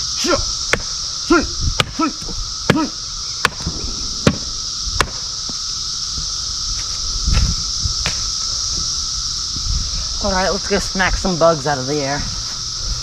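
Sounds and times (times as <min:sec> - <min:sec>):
cicadas droning: 0:00.0 - 0:13.0
low thump: 0:03.5 - 0:06.3.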